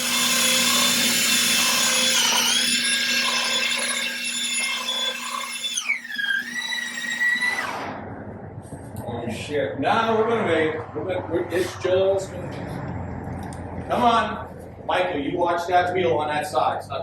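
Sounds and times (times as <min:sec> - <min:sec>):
electric motor whine: 0:00.0 - 0:08.0
low hum: 0:07.4 - 0:17.0.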